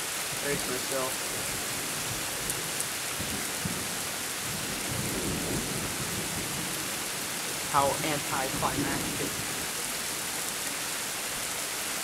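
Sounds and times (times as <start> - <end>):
heavy rain: 0.0 - 12.0
thunder rumble: 0.4 - 9.9.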